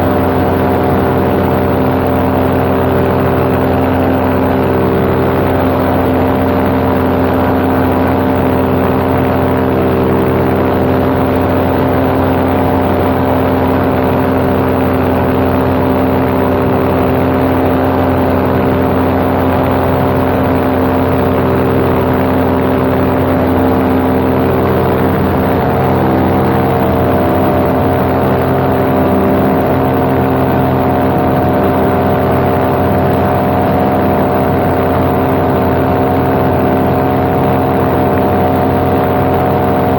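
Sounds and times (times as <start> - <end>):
paramotor engine droning: 0.0 - 39.9.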